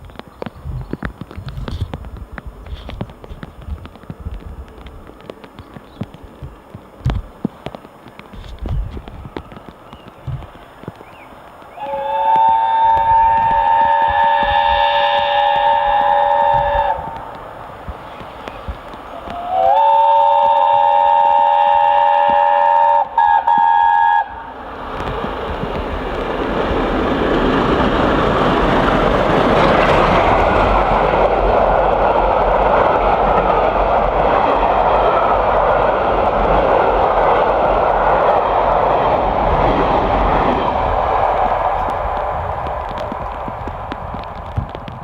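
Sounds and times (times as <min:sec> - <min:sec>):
train running past: 0:00.0 - 0:45.0
steam locomotive chime whistle: 0:11.8 - 0:17.2, 0:19.2 - 0:24.4.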